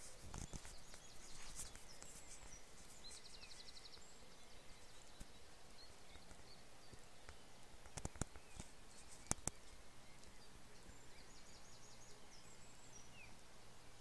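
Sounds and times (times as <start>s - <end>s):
sharp clicks: 7.8s - 9.6s.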